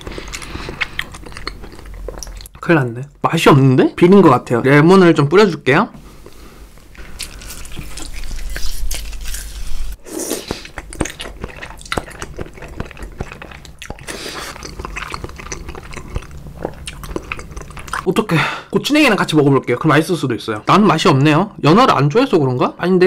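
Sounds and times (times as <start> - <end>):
wet chewing with mouth clicks: 0.0 - 2.7, 6.2 - 18.1
wet slurping: 7.0 - 18.1
juice dripping: 10.3 - 18.1.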